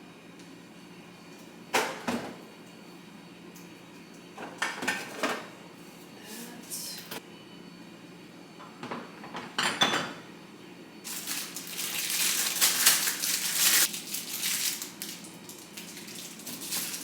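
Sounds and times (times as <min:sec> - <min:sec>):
crinkling rustle: 0:11.1 - 0:17.0.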